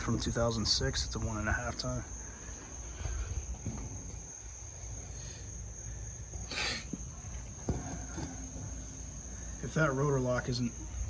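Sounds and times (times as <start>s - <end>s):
crickets trilling: 0.0s - 11.0s
short hiss: 6.5s - 6.9s.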